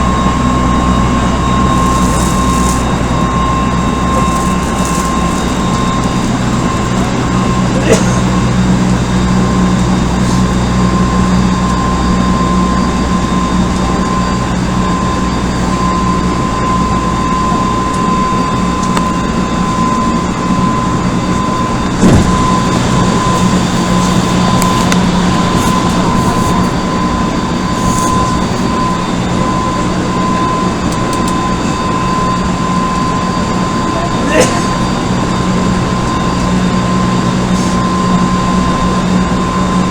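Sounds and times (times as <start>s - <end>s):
train motor whine and hum: 0.0s - 39.9s
train wheels rumbling on rails: 20.4s - 31.4s.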